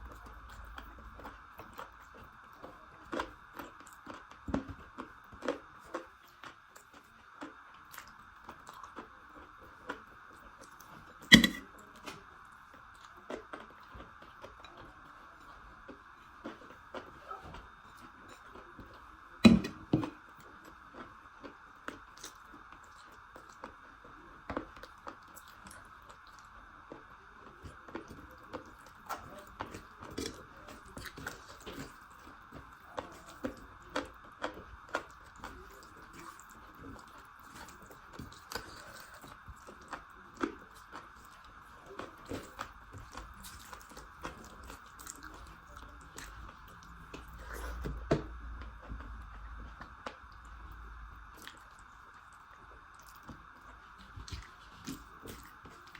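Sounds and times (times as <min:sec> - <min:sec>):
person chewing: 0:10.6 - 0:12.2, 0:27.9 - 0:55.9.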